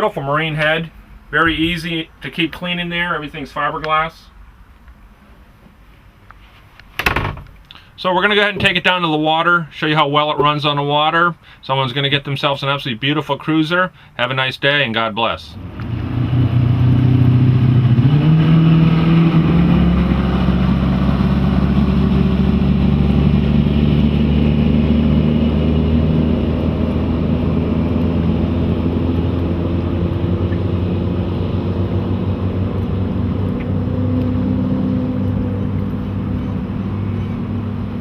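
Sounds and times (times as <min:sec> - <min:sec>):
boat engines running: 0:15.6 - 0:38.0.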